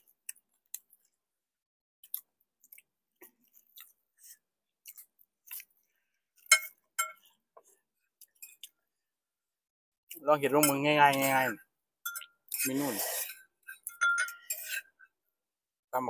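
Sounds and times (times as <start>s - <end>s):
chewing and gnawing on bones: 2.0s - 6.6s
metal spoon clinking on plate: 6.5s - 7.3s, 12.0s - 12.4s, 13.7s - 14.8s.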